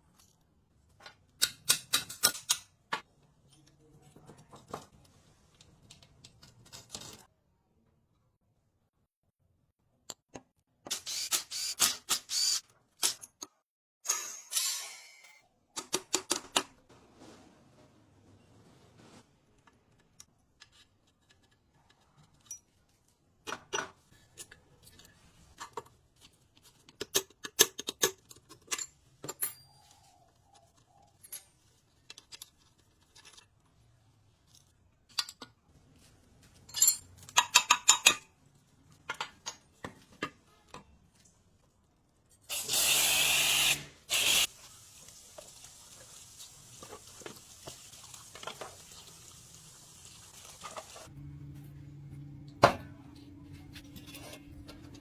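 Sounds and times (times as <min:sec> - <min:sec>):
metal tools clicking and clinking: 0:36.6 - 0:38.2
loud hiss: 0:42.6 - 0:44.5.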